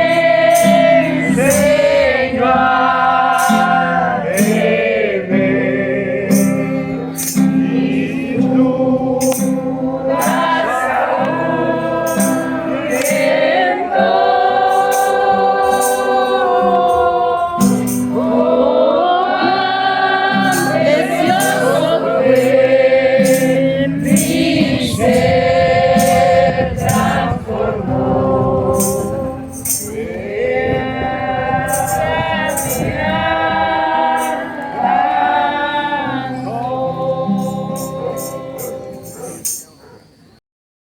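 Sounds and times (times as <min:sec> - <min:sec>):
tambourine shakes: 0:00.0 - 0:01.9, 0:03.3 - 0:04.8, 0:06.3 - 0:07.8, 0:09.2 - 0:13.6, 0:14.7 - 0:18.3, 0:20.3 - 0:22.6, 0:23.2 - 0:27.6, 0:28.5 - 0:30.2, 0:31.6 - 0:35.1, 0:37.2 - 0:40.0
group singing worship song: 0:00.0 - 0:40.0.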